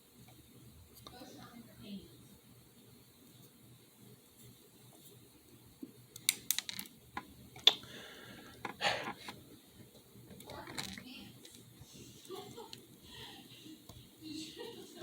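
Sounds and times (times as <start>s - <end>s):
small parts and tools clicking: 6.1s - 7.8s, 10.3s - 11.7s.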